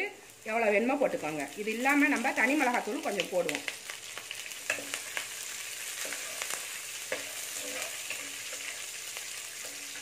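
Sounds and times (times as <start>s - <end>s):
spices sizzling in hot oil: 0.0s - 10.0s
spoon scraping and clicking on pan: 4.6s - 5.3s, 6.0s - 8.8s.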